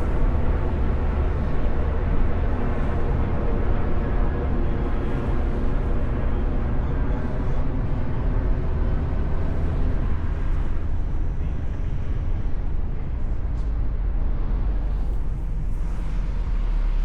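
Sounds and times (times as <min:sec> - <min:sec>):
car engine rumble: 0:00.0 - 0:17.0
road noise: 0:00.0 - 0:17.0.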